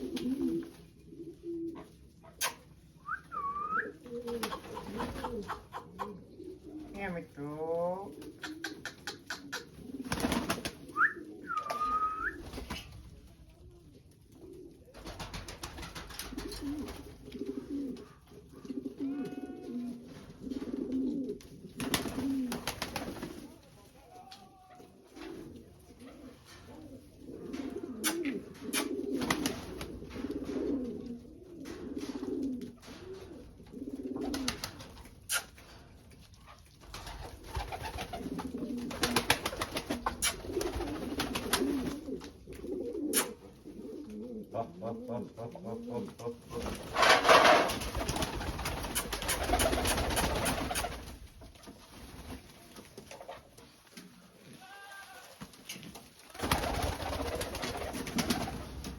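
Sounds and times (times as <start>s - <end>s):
pigeons cooing: 0.0s - 7.1s, 7.9s - 12.7s, 13.9s - 23.5s, 24.8s - 35.9s, 36.9s - 51.3s.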